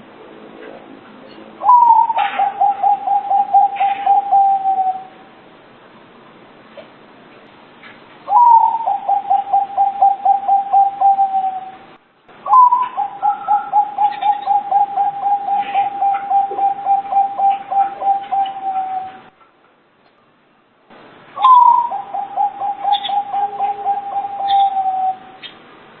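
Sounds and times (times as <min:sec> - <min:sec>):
dove cooing: 0:01.6 - 0:05.3, 0:08.3 - 0:11.9, 0:12.5 - 0:19.4, 0:21.4 - 0:25.6.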